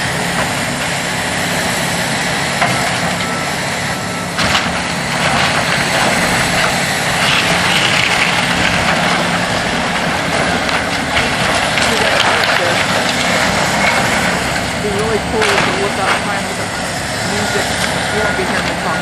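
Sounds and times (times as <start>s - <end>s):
heavy machine engine running: 0.0s - 19.0s
wood cracking and splintering: 4.4s - 19.0s.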